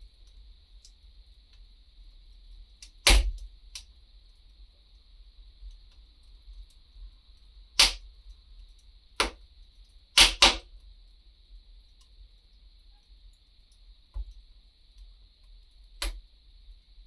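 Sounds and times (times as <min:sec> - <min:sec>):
faint steady hiss: 0:00.0 - 0:17.0
wood fire crackling and popping: 0:03.0 - 0:03.8, 0:07.8 - 0:08.0, 0:09.2 - 0:09.4, 0:10.2 - 0:10.6.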